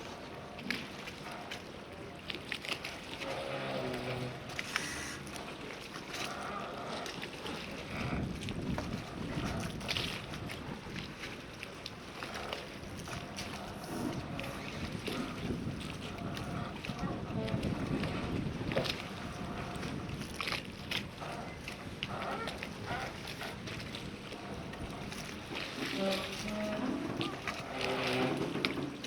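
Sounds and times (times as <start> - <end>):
wind: 0.0 - 29.0
water rushing: 2.8 - 8.0, 21.5 - 29.0.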